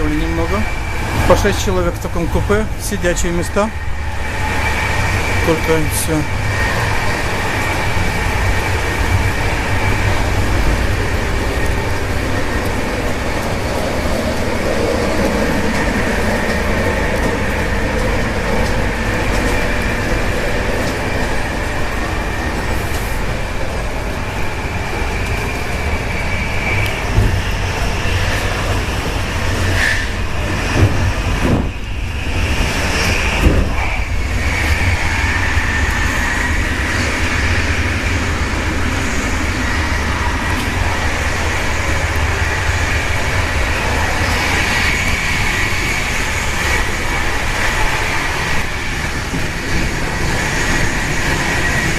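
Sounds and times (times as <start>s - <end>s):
high whine: 0.0s - 51.9s
train running rumble: 0.0s - 51.9s.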